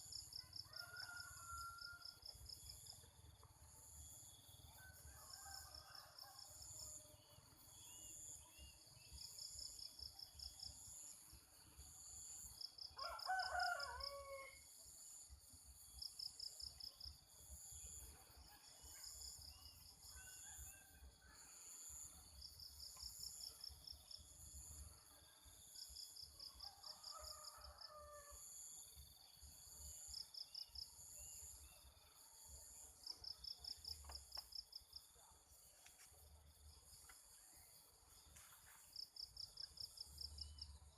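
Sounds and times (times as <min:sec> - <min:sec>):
insects chirping in trills: 0:00.0 - 0:40.9
rooster crowing: 0:00.5 - 0:02.2, 0:13.0 - 0:14.6, 0:26.8 - 0:28.4.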